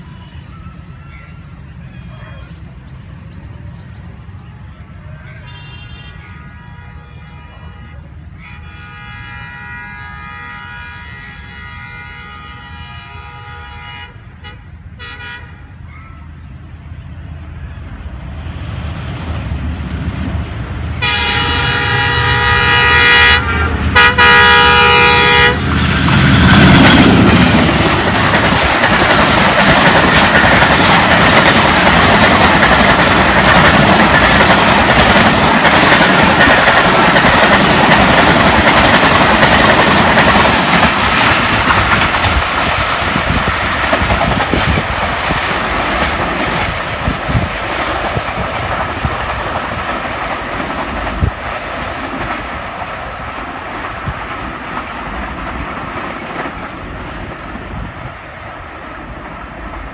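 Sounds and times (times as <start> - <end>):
train passing at high speed: 0.0 - 59.9
locomotive horn blasts: 5.2 - 16.2, 21.0 - 27.0
wheel clatter over rail joints: 25.6 - 58.4.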